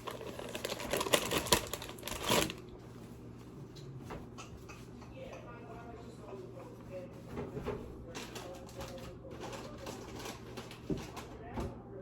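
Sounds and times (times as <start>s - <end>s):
packaging rustling and crinkling: 0.0s - 2.7s, 8.1s - 11.3s.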